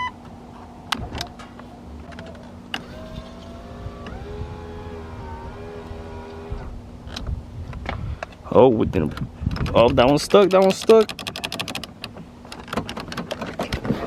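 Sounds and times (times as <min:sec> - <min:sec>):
lower window motor whine: 0:01.9 - 0:06.9
power window motor whine: 0:02.3 - 0:06.8.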